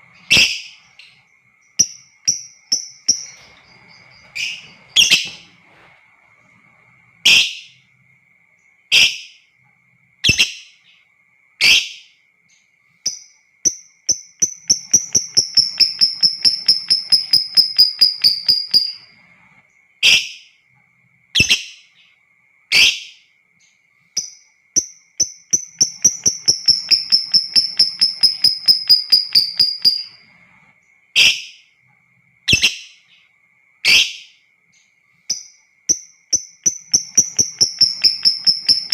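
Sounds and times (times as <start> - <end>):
lovebird chattering trill: 0.0 - 1.2, 1.8 - 5.4, 13.1 - 19.1, 24.2 - 30.2, 35.3 - 38.9
faint steady high tone: 0.0 - 38.9.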